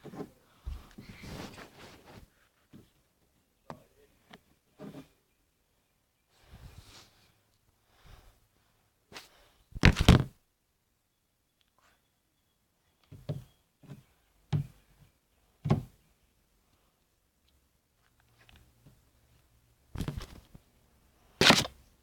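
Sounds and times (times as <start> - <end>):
knocks and thumps: 9.8 - 10.3.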